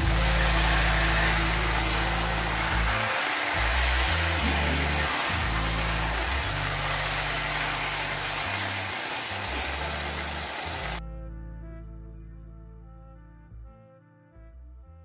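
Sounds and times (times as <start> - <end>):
food sizzling in a pan: 0.0 - 11.0
background music with bass: 0.0 - 15.0.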